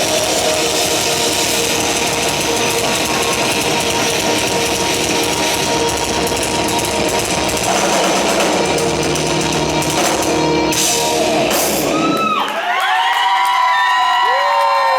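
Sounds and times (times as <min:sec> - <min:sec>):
crowd cheering: 0:00.0 - 0:06.4, 0:10.3 - 0:14.9
heavy rock band playing: 0:00.0 - 0:12.4.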